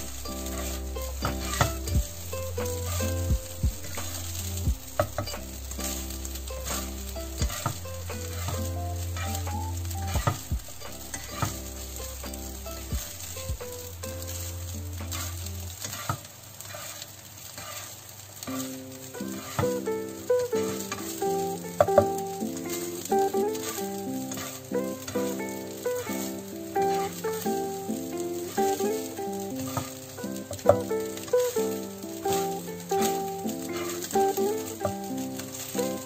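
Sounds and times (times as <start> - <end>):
fried rice sizzling in a wok: 0.0 - 36.0
spatula scraping and tapping pan: 0.0 - 36.0.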